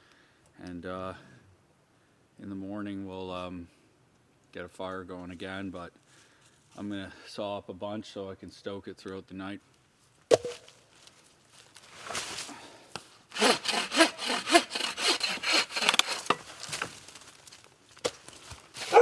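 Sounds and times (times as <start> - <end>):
hand saw cutting wood: 13.3 - 17.0, 18.8 - 19.0.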